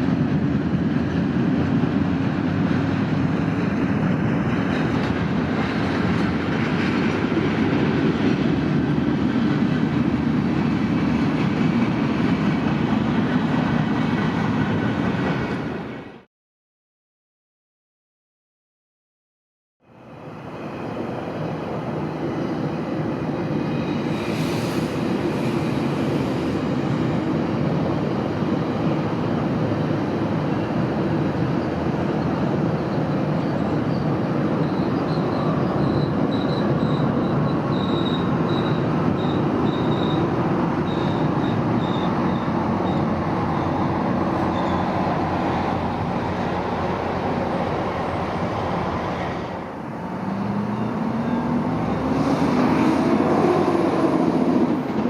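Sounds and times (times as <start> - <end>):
train wheels rumbling on rail: 0.0 - 16.3, 20.0 - 55.0
high-pitched wheel squeal: 33.0 - 45.0.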